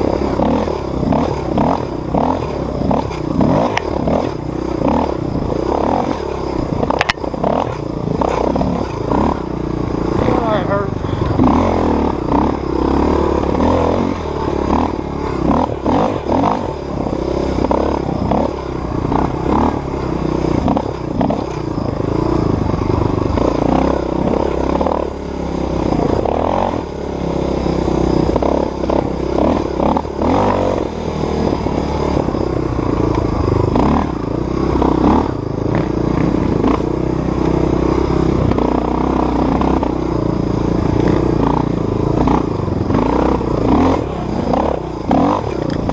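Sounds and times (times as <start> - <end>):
bike rattles and knocks: 0.0 - 12.9, 32.8 - 37.6, 38.4 - 45.9
dirt bike engine revving: 0.0 - 45.9.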